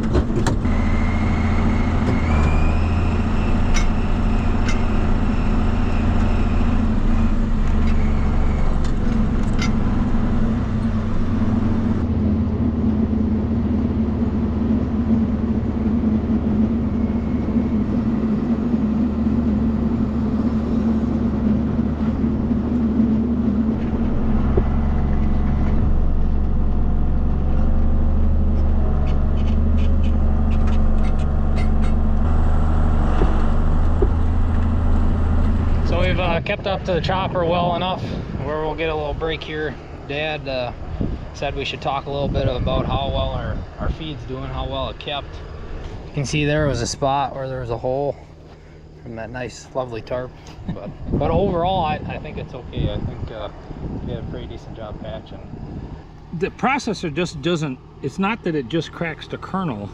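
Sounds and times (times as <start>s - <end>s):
tractor diesel engine droning: 0.0s - 59.9s.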